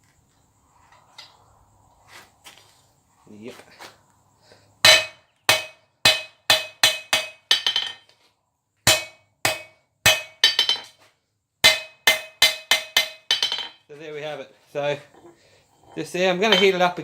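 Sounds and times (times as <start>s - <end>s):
anvil ringing: 4.8s - 8.0s, 8.9s - 11.0s, 11.6s - 13.8s, 16.4s - 17.0s
hammer striking metal on anvil: 4.8s - 8.0s, 8.9s - 11.0s, 11.6s - 13.8s, 16.5s - 16.9s.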